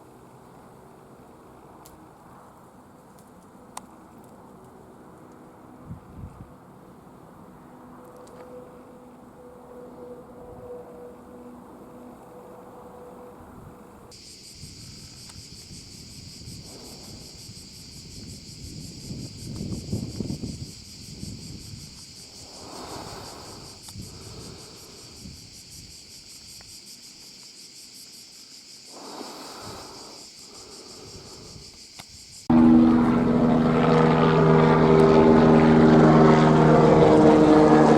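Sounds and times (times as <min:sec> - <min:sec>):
high-pitched insect chorus: 0:11.8 - 0:32.5.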